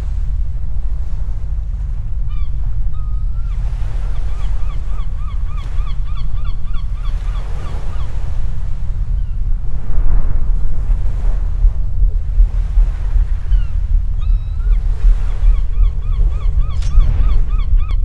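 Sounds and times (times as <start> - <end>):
surf rumble: 0.0 - 18.0
wind: 0.0 - 18.0
bird rapid repeated calls: 13.3 - 18.0.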